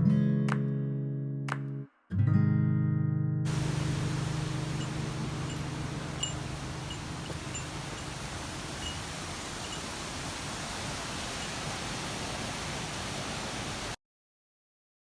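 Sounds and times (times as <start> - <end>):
stream water rushing: 3.5 - 14.0.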